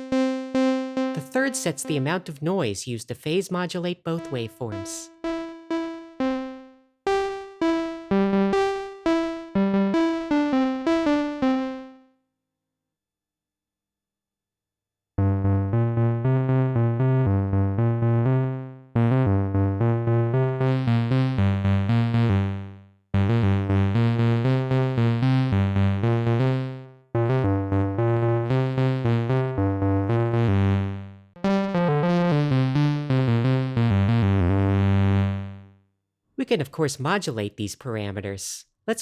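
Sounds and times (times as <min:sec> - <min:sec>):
synthesizer bass notes: 0:15.2 - 0:35.6.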